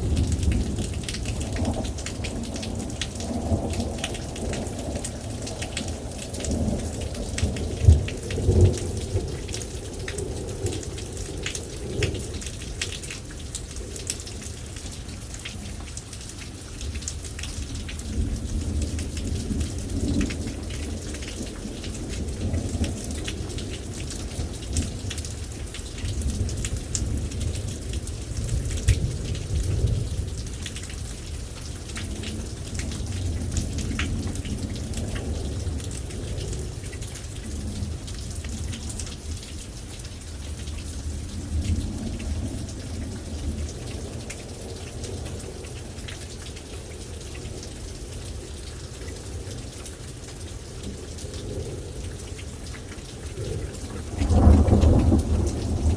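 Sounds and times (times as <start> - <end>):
thunder rumbling: 0.0 - 13.1, 50.8 - 55.9
rain falling: 0.0 - 55.9.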